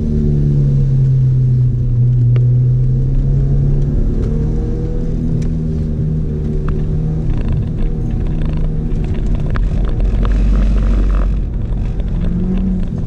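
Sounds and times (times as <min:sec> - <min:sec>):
car engine from inside cabin: 0:00.0 - 0:13.0
road rumble: 0:00.0 - 0:13.0.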